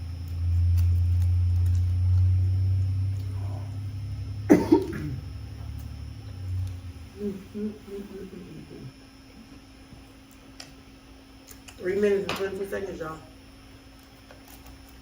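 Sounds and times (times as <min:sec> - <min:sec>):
low steady hum: 0:00.0 - 0:15.0
person coughing: 0:04.5 - 0:05.3.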